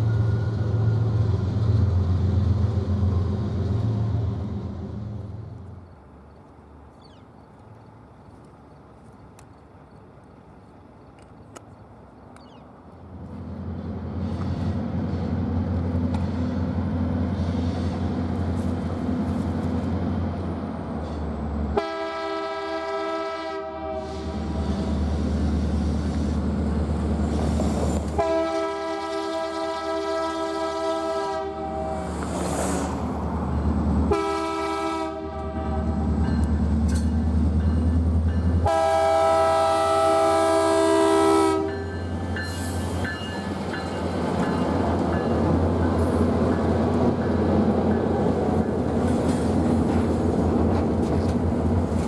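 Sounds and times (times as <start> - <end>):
diesel locomotive rumbling: 0.0 - 52.0
train air horn blasts: 21.7 - 25.0, 28.2 - 32.1, 34.1 - 36.0, 38.6 - 41.9.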